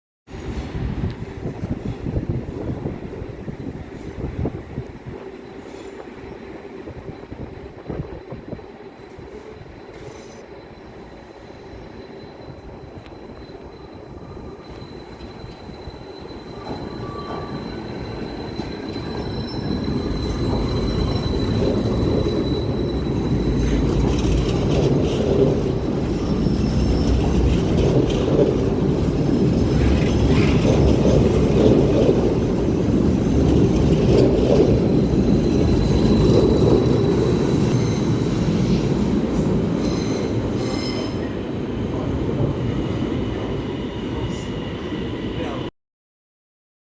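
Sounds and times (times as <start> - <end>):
electric train running noise: 9.0 - 41.0
wheel squeals: 9.1 - 41.4.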